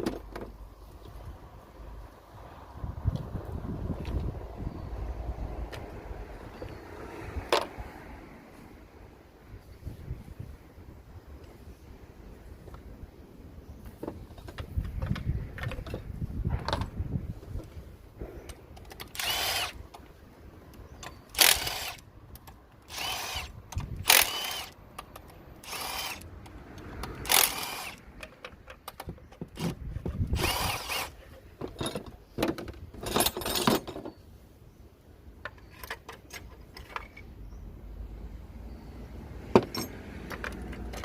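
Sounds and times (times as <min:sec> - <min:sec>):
power drill bursts: 0:19.1 - 0:19.8, 0:21.3 - 0:22.0, 0:22.9 - 0:24.8, 0:25.6 - 0:26.2, 0:27.2 - 0:28.0, 0:30.4 - 0:31.2.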